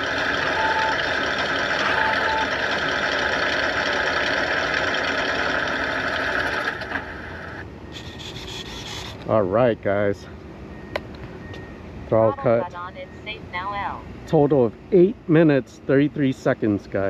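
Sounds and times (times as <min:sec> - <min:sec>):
simulated radial engine idling: 0:00.0 - 0:10.9.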